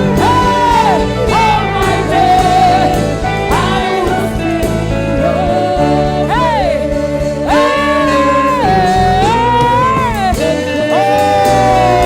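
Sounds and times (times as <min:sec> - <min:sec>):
person singing gospel: 0:00.0 - 0:12.0
steady beat: 0:00.0 - 0:12.0
sustained keyboard chords: 0:00.0 - 0:12.0.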